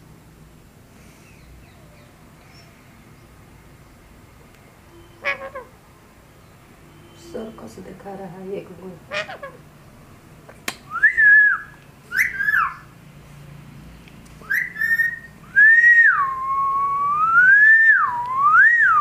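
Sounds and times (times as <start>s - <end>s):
parrot whistling: 4.9s - 5.7s, 10.9s - 12.9s, 14.4s - 19.0s.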